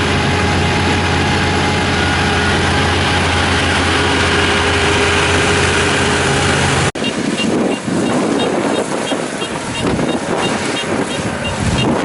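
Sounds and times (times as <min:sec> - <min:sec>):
diesel engine running: 0:00.0 - 0:12.0
wind noise on microphone: 0:06.8 - 0:12.0.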